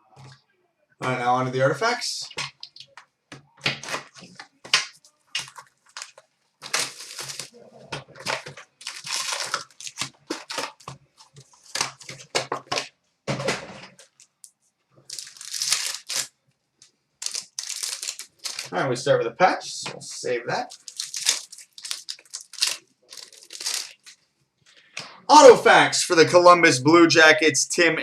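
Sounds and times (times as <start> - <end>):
wrappers tearing and crinkling: 3.8 - 12.9, 15.1 - 16.3, 17.2 - 18.8, 20.7 - 24.2.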